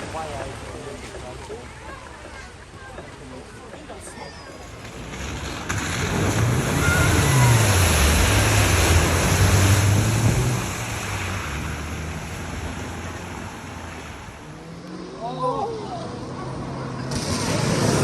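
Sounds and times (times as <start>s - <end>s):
car engine pulling through water: 0.0s - 18.0s
rush of water spray: 4.7s - 14.6s, 17.0s - 18.0s.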